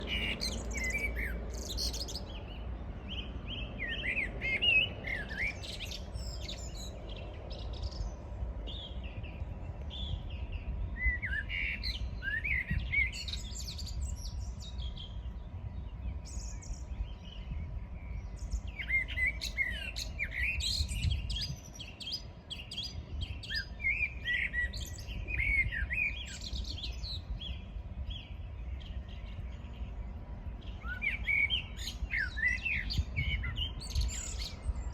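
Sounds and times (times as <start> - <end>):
birds chirping and twittering: 0.0 - 34.9
steady low rumble: 12.0 - 23.4.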